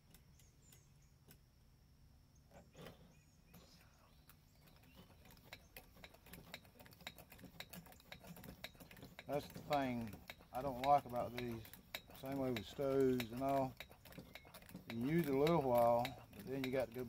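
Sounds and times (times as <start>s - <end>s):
small metal parts clicking: 4.6s - 17.0s.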